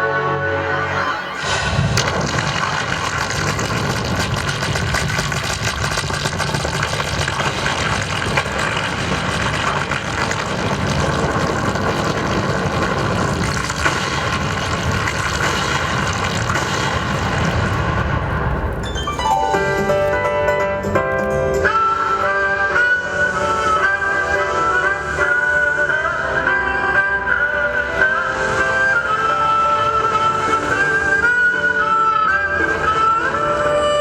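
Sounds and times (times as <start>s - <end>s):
music: 0.0s - 2.4s, 18.8s - 34.0s
dense rumbling roar: 0.4s - 18.8s.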